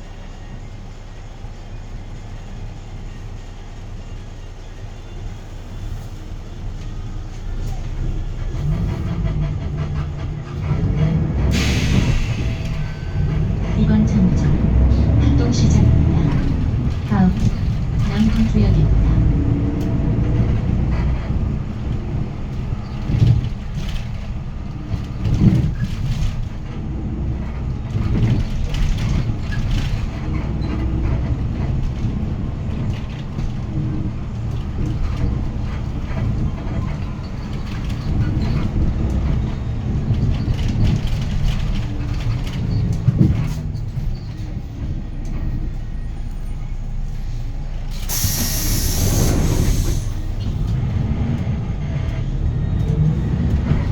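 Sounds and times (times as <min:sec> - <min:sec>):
bus diesel engine running: 0:00.0 - 0:53.9
road and drivetrain noise: 0:00.0 - 0:53.9
body knocks and rattles: 0:21.7 - 0:44.9.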